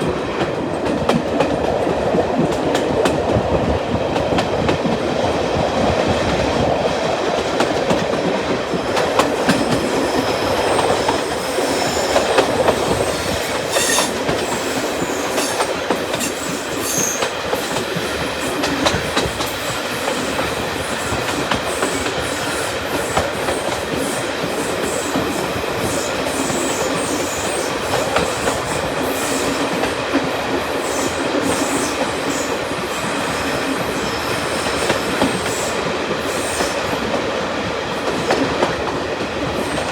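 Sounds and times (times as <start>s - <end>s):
train rumble and rail noise: 0.0s - 39.9s
faint high wheel squeal: 10.0s - 15.6s, 16.2s - 17.3s.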